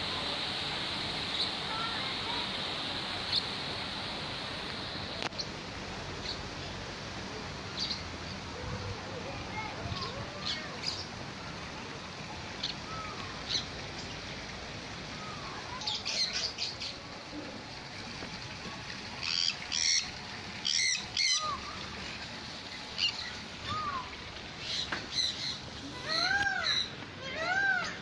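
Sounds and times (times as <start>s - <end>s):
steady background hiss: 0.0s - 28.0s
caged birds chirping and squawking: 19.2s - 28.0s.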